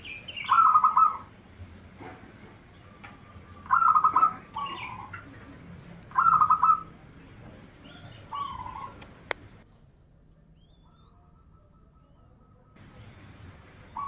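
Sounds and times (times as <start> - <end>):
dove cooing: 0.4 - 1.3, 2.7 - 9.6, 10.8 - 14.0.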